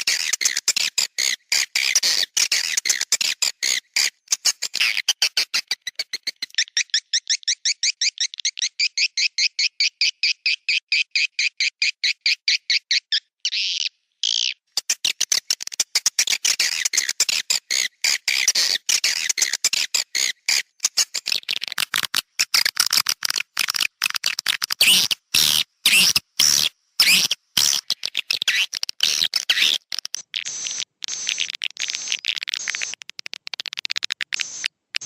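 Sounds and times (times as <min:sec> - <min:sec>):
fast run of short chirps: 0:19.1 - 0:34.8
dense rapid twittering: 0:27.8 - 0:34.7.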